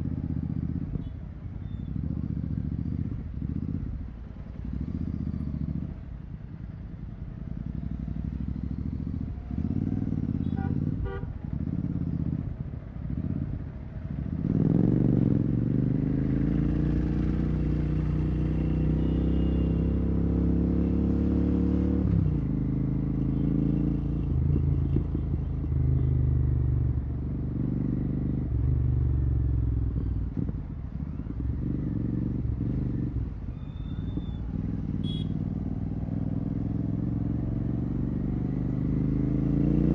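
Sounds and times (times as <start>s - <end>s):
motorcycle engine burbling: 22.4s - 39.9s
vehicle horns tooting: 35.0s - 35.4s.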